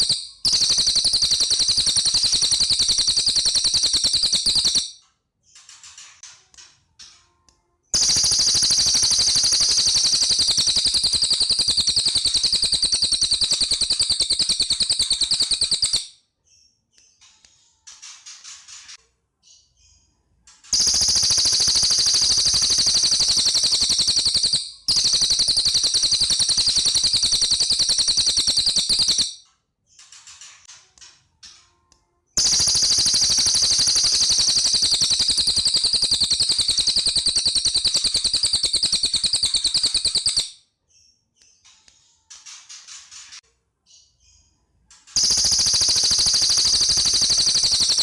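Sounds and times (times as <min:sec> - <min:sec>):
bird singing rapid trills: 0:00.0 - 0:05.0, 0:07.9 - 0:16.1, 0:20.7 - 0:29.4, 0:32.4 - 0:40.5, 0:45.2 - 0:48.0
soft bird chirps: 0:00.0 - 0:48.0.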